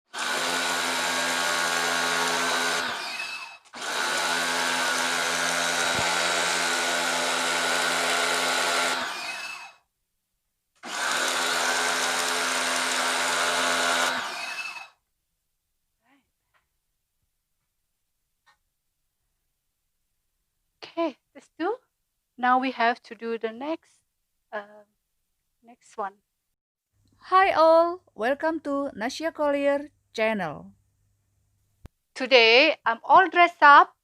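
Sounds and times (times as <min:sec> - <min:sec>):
pressure washer motor hum: 0:00.1 - 0:09.8, 0:10.8 - 0:14.9.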